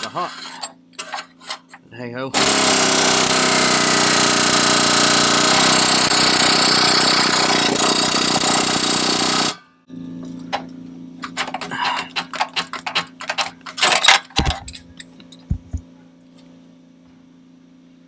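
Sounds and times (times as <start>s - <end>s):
power tool rattling on exhaust pipe: 0.0s - 1.8s, 2.4s - 9.6s, 11.2s - 15.8s.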